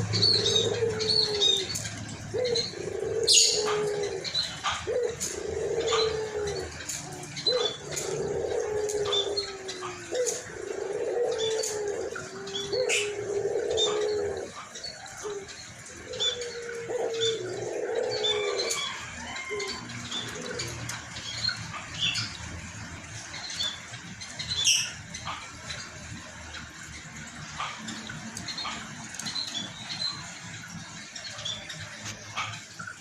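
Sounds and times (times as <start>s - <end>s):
dove cooing: 0.0s - 22.4s.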